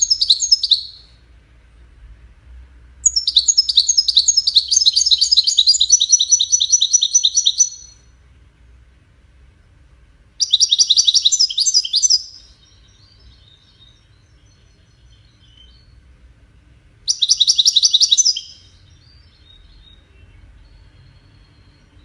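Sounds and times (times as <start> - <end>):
goldfinch singing: 0.0 - 1.1, 3.0 - 8.0, 10.4 - 16.0, 17.1 - 22.0.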